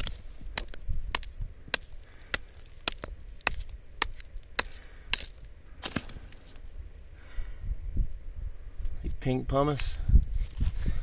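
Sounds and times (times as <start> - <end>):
rock hammer striking rock: 0.0 - 6.2.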